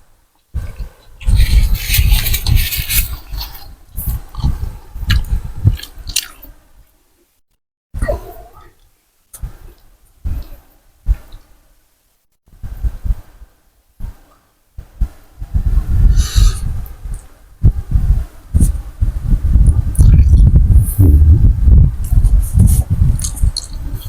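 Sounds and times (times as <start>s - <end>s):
wet chewing and slurping: 0.6s - 6.5s.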